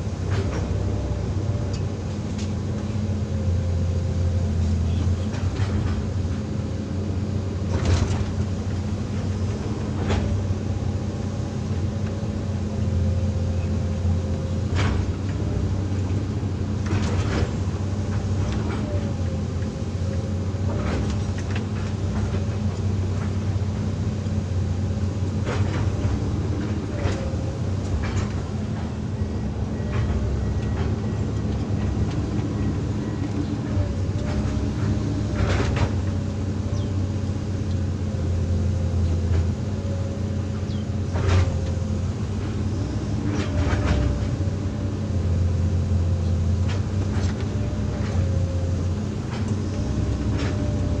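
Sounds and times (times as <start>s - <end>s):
diesel engine running with whine: 0.0s - 51.0s.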